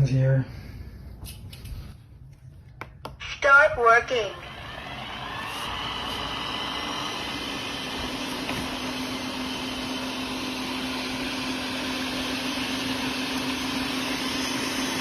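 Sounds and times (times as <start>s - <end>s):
robot vacuum whirring: 4.0s - 15.0s.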